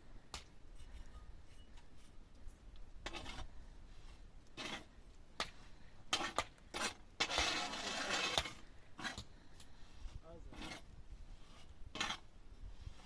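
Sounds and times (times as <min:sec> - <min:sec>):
scraping and rubbing: 0:03.0 - 0:05.0, 0:06.1 - 0:09.3, 0:09.9 - 0:13.0.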